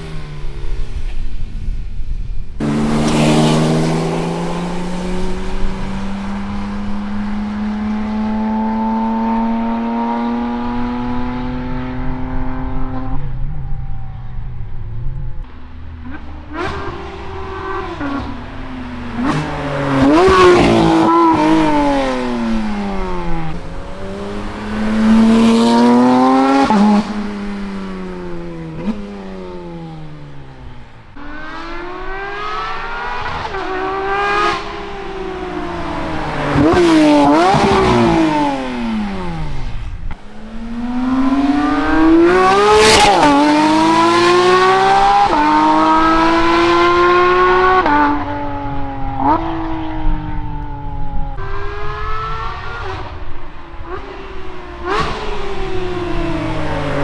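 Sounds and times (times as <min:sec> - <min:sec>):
car engine revving hard: 0:02.6 - 0:57.0
tyre noise: 0:13.2 - 0:57.0.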